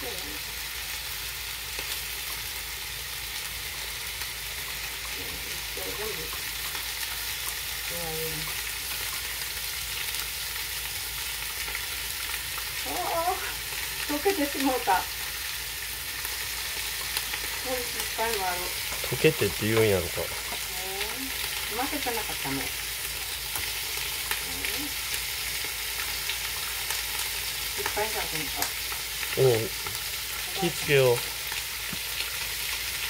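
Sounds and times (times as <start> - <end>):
food sizzling in hot oil: 0.0 - 33.0
low voices: 19.1 - 21.1.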